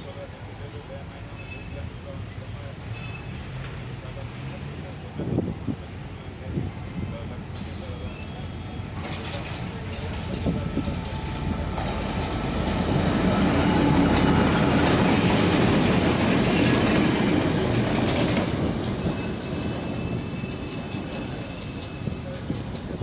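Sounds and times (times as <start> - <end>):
train wheels on rails: 6.6 - 23.0.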